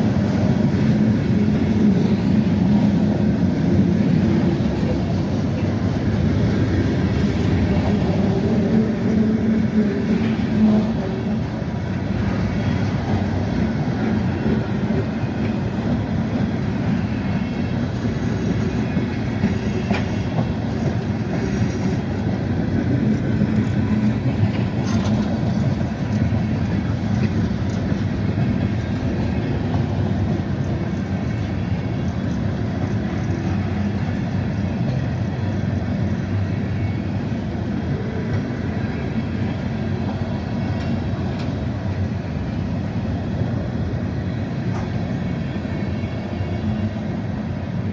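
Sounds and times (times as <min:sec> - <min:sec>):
train wheels rumbling on rails: 0:00.0 - 0:47.9
wheels clicking over rail joints: 0:18.0 - 0:35.6.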